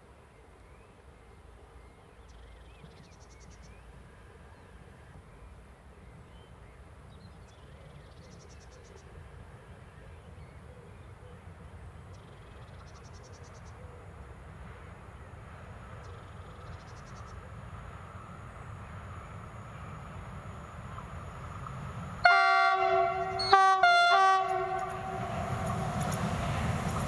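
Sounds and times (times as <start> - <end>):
train rumbling: 14.0 - 27.0.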